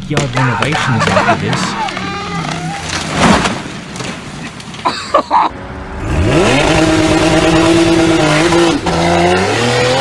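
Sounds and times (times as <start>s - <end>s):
car engine accelerating: 5.5s - 10.0s.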